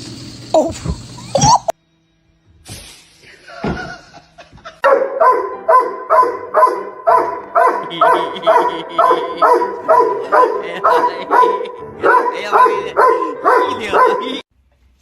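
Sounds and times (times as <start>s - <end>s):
dog barking: 4.8s - 14.4s.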